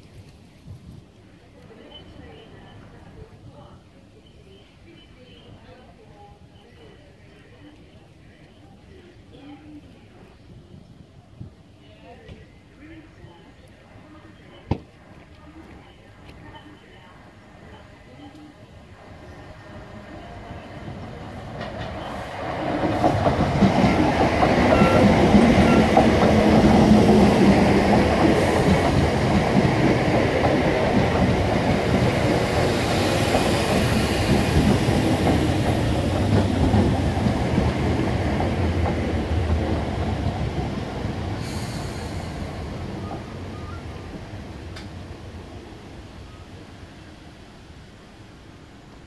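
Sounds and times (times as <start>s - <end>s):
electric train passing: 17.0s - 49.0s.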